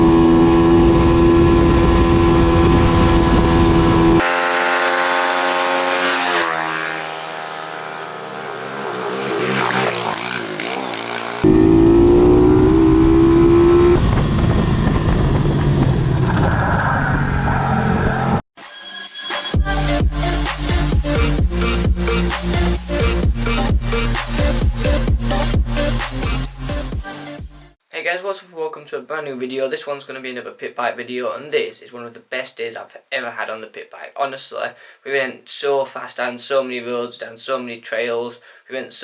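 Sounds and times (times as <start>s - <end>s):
motorbike engine revving: 0.0s - 16.4s.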